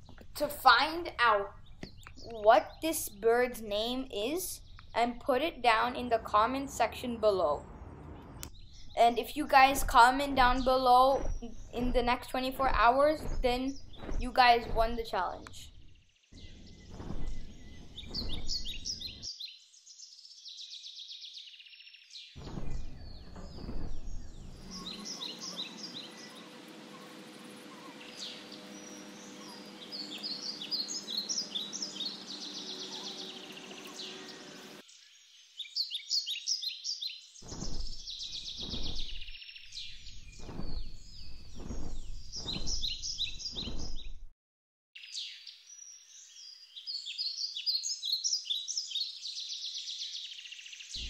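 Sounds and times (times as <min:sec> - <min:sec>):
small birds chirping: 0:00.0 - 0:44.3, 0:45.0 - 0:51.0
low rumble on microphone: 0:07.3 - 0:19.3, 0:22.4 - 0:33.1, 0:37.4 - 0:44.3.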